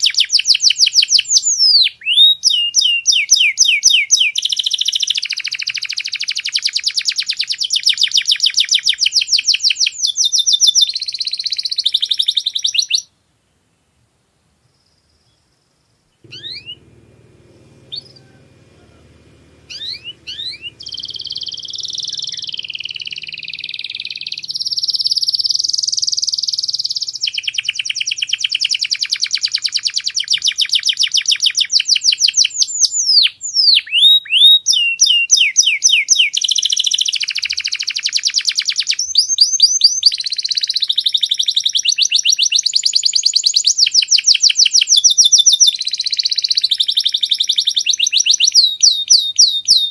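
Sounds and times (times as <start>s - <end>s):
canary singing trills: 0.0s - 13.1s, 16.2s - 49.9s.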